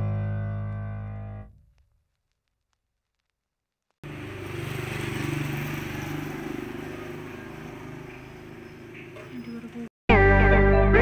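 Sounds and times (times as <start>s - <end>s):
vehicle engine passing by: 4.0s - 9.9s.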